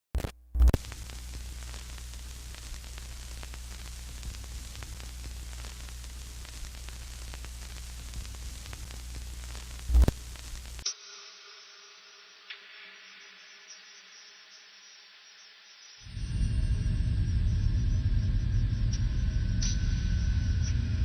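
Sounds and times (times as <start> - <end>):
static hiss with crackles: 0.2 - 16.2
low hum: 16.1 - 21.0.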